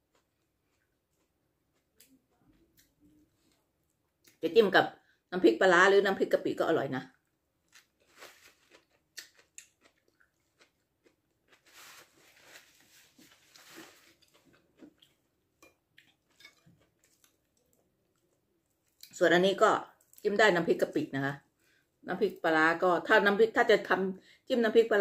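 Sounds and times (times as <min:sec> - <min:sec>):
person crunching pea pods: 0:07.6 - 0:15.2.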